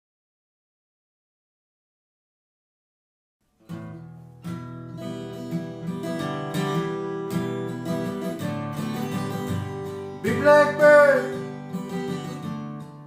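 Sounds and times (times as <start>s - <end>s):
acoustic guitar playing: 3.5s - 13.0s.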